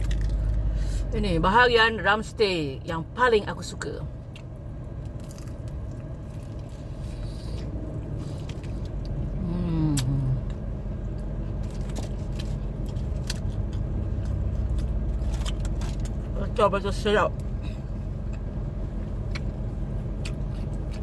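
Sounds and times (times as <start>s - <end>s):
low rumble: 0.0s - 21.0s
chewing crispy fried chicken: 4.1s - 16.4s, 17.4s - 21.0s.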